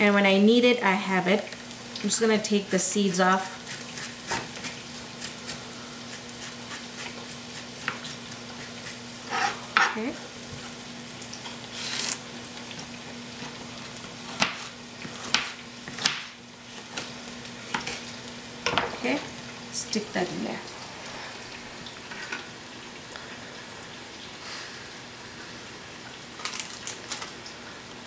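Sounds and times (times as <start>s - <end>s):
onions and tomato frying: 0.0s - 28.0s
knife chopping on cutting board: 6.4s - 8.2s, 14.4s - 14.7s, 15.3s - 16.3s.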